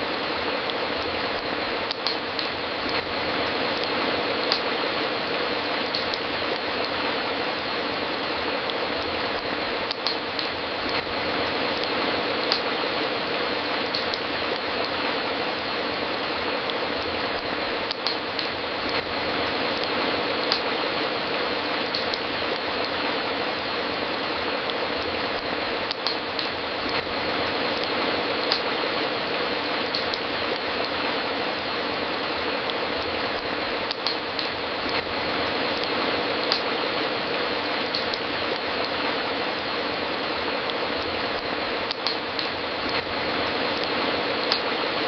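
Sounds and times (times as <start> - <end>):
wood fire crackling and popping: 0.0 - 45.0
sharp fire pops: 17.0 - 19.1.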